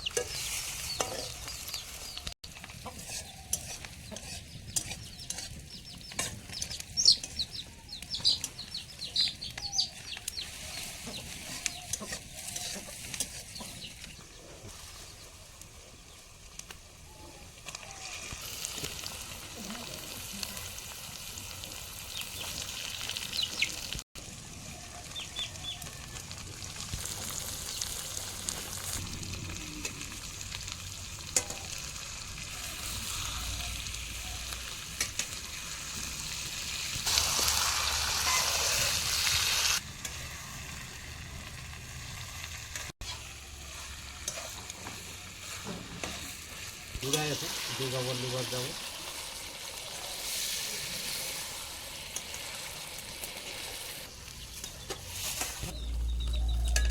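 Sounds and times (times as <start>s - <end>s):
chickens clucking: 0.0s - 14.8s
curry sizzling in hot oil: 0.0s - 56.9s.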